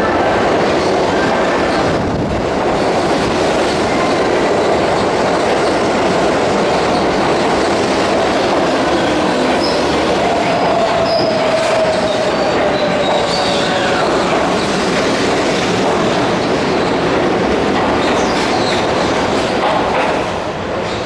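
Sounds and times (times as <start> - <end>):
train wheels rumbling on rail: 0.0 - 21.0
wheel squeal: 9.0 - 13.9.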